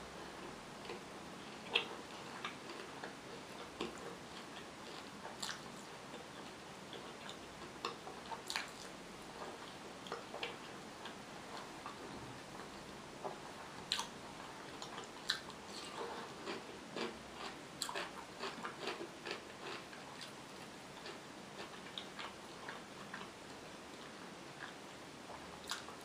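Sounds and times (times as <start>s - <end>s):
chewing with wet mouth clicks: 1.6s - 12.0s, 13.9s - 20.4s, 24.0s - 26.0s.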